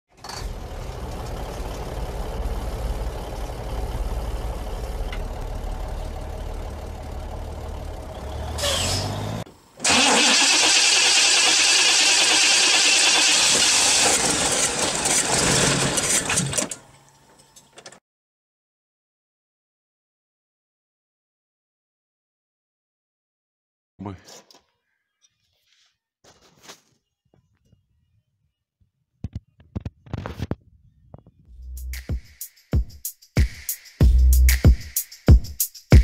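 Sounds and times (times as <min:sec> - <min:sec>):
car engine rumbling: 0:00.3 - 0:17.0.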